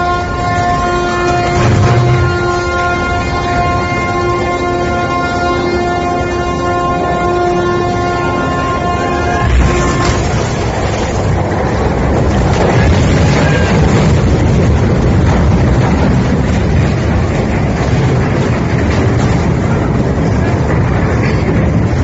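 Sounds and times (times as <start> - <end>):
ship horn blast: 0.0 - 11.8
low rumbling noise: 0.0 - 22.0
wind buffeting microphone: 8.8 - 22.0.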